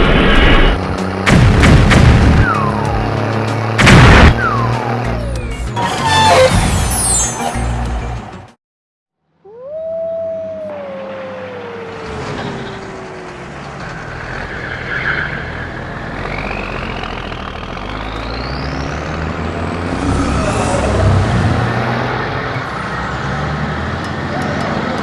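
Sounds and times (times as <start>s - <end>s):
rising engine whine: 9.5s - 25.0s.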